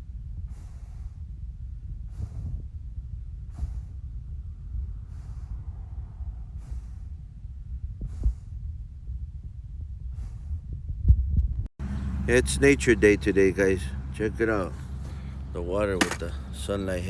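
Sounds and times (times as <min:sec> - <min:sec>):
steady low rumble: 0:00.0 - 0:11.7
person breathing: 0:00.5 - 0:01.3, 0:02.1 - 0:02.6, 0:03.5 - 0:04.1, 0:05.0 - 0:07.2, 0:14.7 - 0:16.2.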